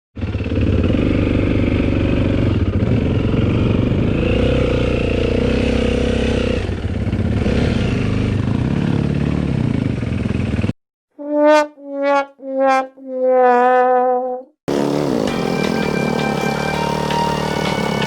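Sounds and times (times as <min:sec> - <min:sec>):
dirt bike engine revving: 0:00.2 - 0:10.7, 0:14.7 - 0:18.0.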